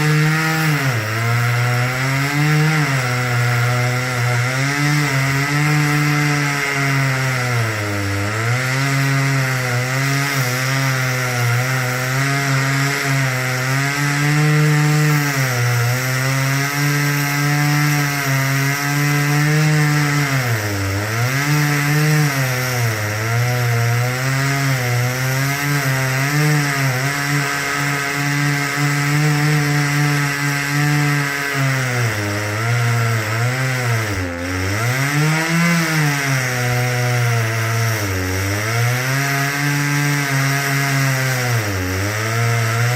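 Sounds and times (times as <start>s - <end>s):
chainsaw cutting wood: 0.0s - 42.9s.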